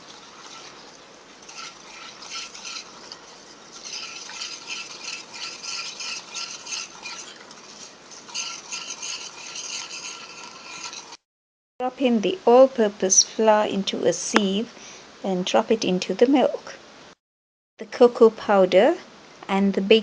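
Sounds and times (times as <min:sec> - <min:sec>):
utensil scraping in a bowl: 0:00.0 - 0:11.2.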